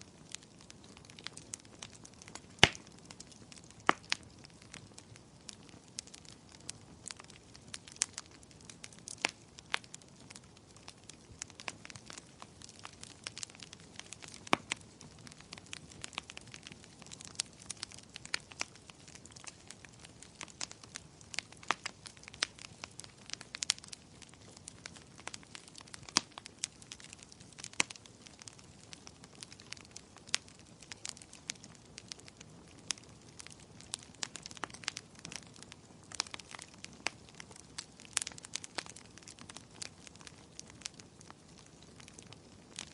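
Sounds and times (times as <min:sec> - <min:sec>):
wood fire crackling: 0:00.0 - 0:42.9.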